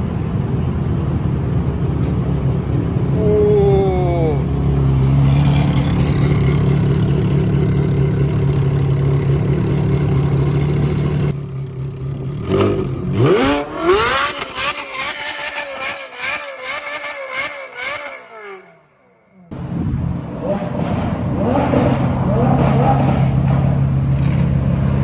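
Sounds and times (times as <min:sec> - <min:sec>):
deep engine rumble: 0:00.0 - 0:13.9
engine revving: 0:02.4 - 0:24.5.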